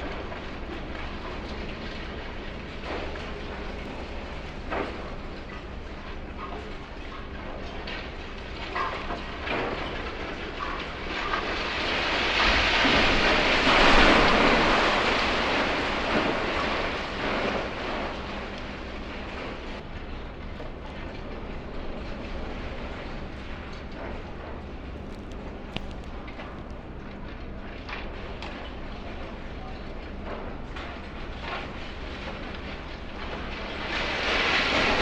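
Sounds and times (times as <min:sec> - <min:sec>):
low machinery hum: 0:00.0 - 0:35.0
rubble crashing down: 0:08.0 - 0:19.8, 0:22.0 - 0:27.0, 0:32.6 - 0:35.0.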